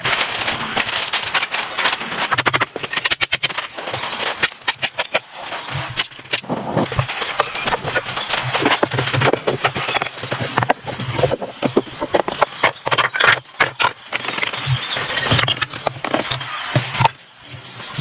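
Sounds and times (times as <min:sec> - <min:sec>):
sharp knocks and clicks: 0:06.0 - 0:17.2.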